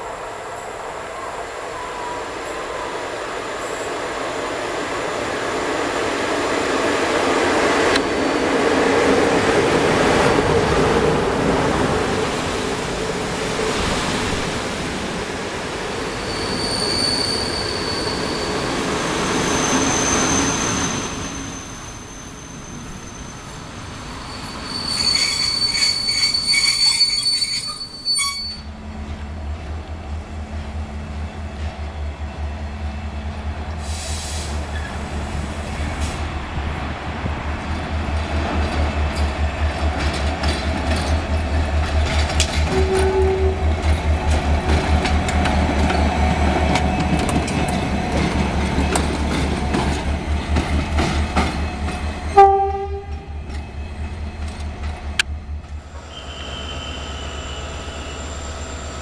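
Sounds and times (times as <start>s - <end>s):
train running on rails: 0.0s - 59.0s
wheel squeals: 16.2s - 28.7s, 56.0s - 59.0s.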